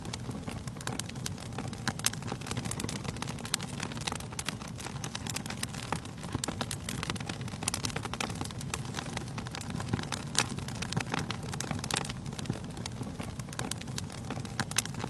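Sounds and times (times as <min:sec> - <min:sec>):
burning logs crackling and popping: 0:00.0 - 0:15.0
low rumble of flames: 0:00.0 - 0:15.0.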